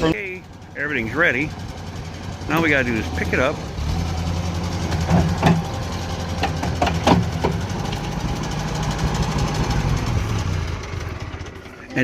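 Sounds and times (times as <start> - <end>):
engine idling: 0.0 - 12.0
sharp knocks and clanks: 3.8 - 11.8.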